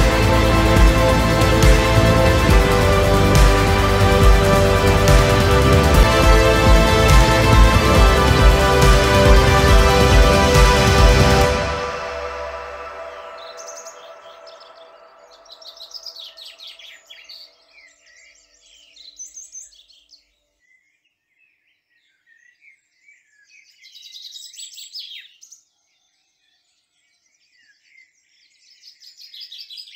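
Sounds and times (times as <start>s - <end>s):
background music: 0.0s - 16.3s.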